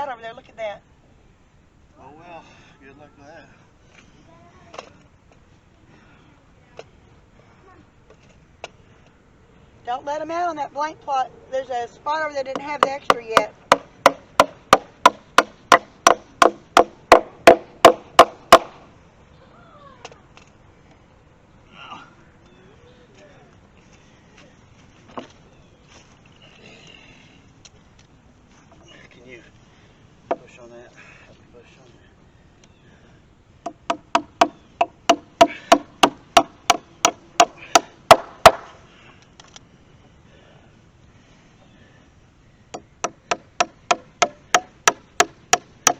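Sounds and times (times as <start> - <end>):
hammer striking wood: 12.6 - 18.8, 33.6 - 38.8, 42.7 - 45.9.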